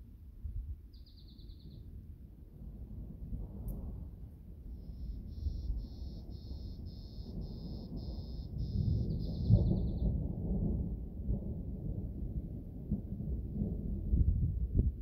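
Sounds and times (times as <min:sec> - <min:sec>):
thunder rumbling: 0:02.6 - 0:15.0
repeating high call: 0:05.0 - 0:09.4.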